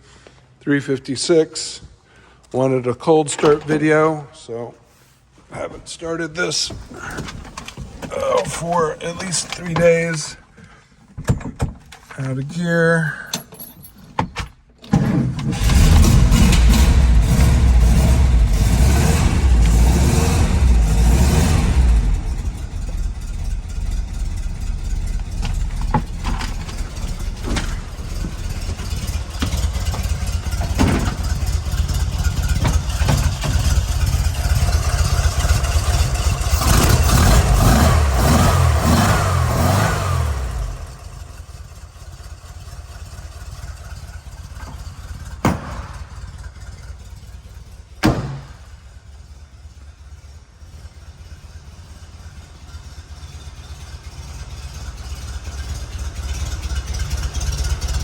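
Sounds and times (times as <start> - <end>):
car engine running and revving: 15.4 - 58.0.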